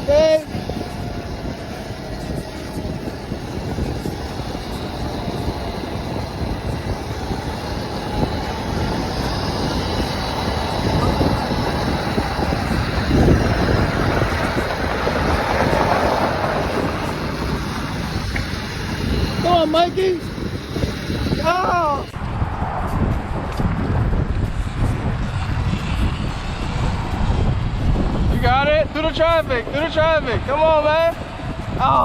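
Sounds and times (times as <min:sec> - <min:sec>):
faint high whine: 0:00.0 - 0:22.2
vehicle riding through traffic: 0:00.0 - 0:32.0.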